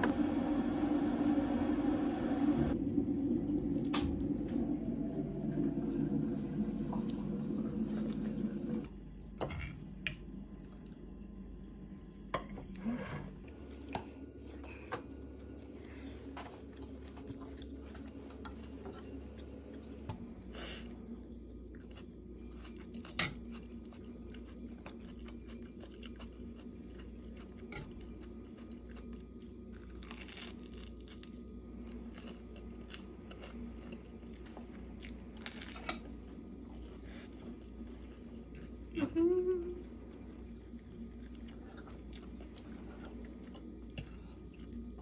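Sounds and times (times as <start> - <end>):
steady low hum: 0.0 - 45.0
person chewing and crunching food: 16.6 - 39.0, 39.8 - 45.0.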